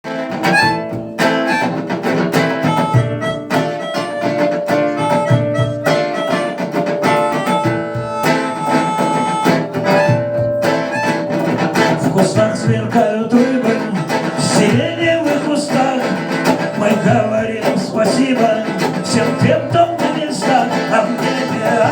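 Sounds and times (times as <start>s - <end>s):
band playing live: 0.0s - 21.9s
strummed guitar: 0.0s - 21.9s
long held melody note: 2.8s - 12.2s.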